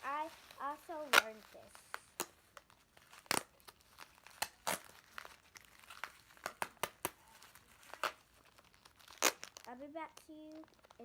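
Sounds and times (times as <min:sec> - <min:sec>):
plastic bags crinkling: 0:00.0 - 0:11.0
sticky tape pulled and torn: 0:00.5 - 0:11.0.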